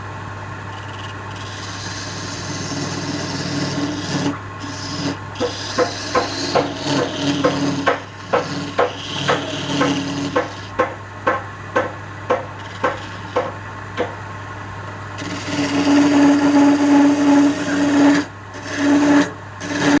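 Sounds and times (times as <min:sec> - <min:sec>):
turning tool scraping wood: 0:00.7 - 0:10.9, 0:12.3 - 0:14.1, 0:15.2 - 0:20.0
sharp knocks: 0:05.4 - 0:14.2.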